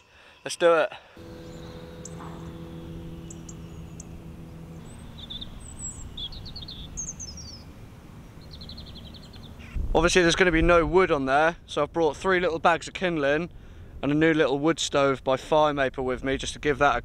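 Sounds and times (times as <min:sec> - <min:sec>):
small birds chirping and trilling: 0:01.2 - 0:09.8
steady low hum: 0:01.2 - 0:10.5
low outdoor background: 0:01.2 - 0:11.8.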